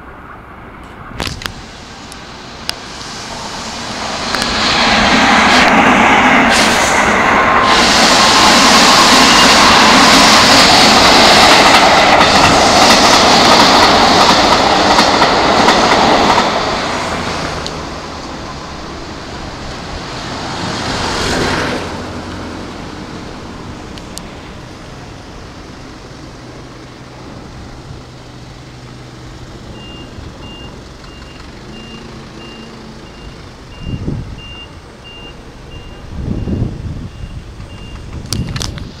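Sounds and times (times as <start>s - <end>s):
electric train running past: 0.0s - 39.0s
high electronic beep: 29.8s - 38.6s.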